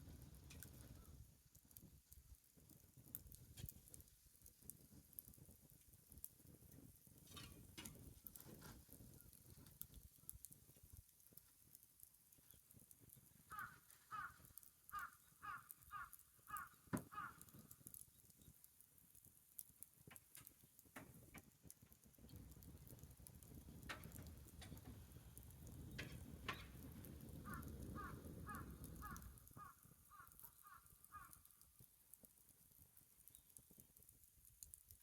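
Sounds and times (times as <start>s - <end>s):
faint clicks: 23.4s - 35.0s.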